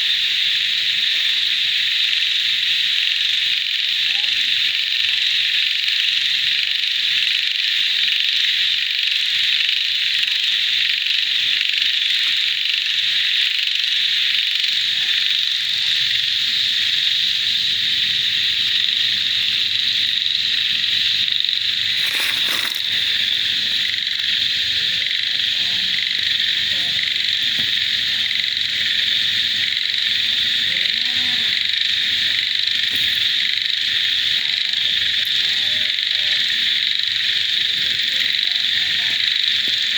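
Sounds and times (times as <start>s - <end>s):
high-pitched insect trilling: 20.0s - 27.4s
brief rustle: 21.9s - 23.3s.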